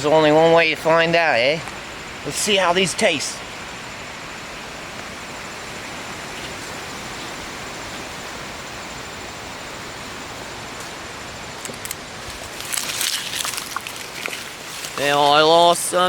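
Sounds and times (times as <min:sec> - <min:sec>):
outdoor background hiss: 0:00.0 - 0:16.0
faint rustles and clicks: 0:10.7 - 0:15.9.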